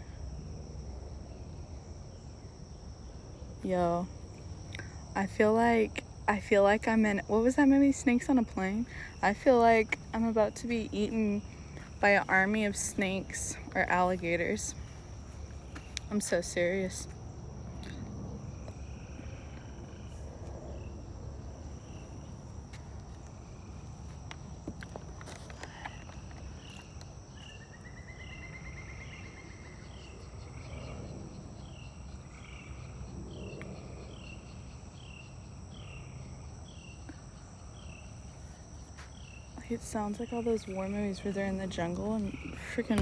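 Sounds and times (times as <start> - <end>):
insects high-pitched drone: 0.0 - 43.0.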